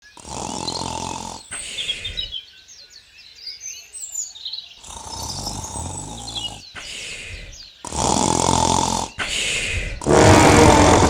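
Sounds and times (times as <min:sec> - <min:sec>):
person snoring: 0:00.0 - 0:02.3, 0:04.8 - 0:11.0
birds chirping: 0:00.0 - 0:11.0.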